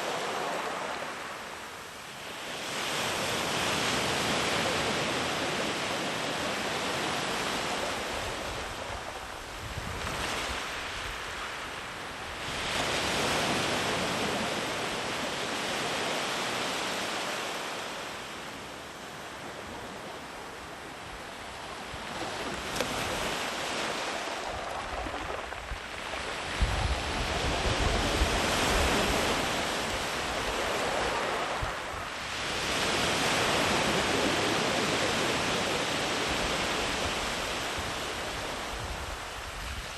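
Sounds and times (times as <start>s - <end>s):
sea waves breaking on a beach: 0.0s - 39.9s
wind rumble on microphone: 6.7s - 14.5s, 21.1s - 39.9s.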